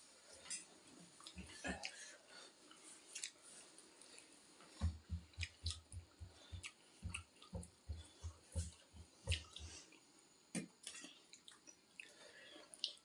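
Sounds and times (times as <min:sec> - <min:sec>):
wet chewing of noodles: 0:05.3 - 0:10.1, 0:10.8 - 0:13.0.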